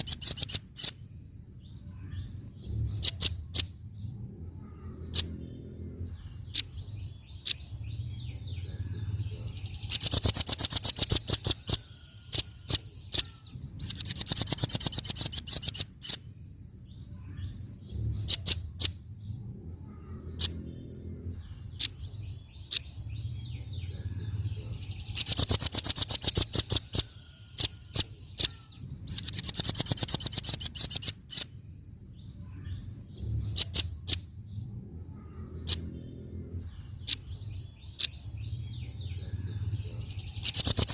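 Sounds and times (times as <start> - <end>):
bird rattling trills: 0.0 - 1.0, 9.8 - 16.3, 25.1 - 31.6, 40.4 - 40.9.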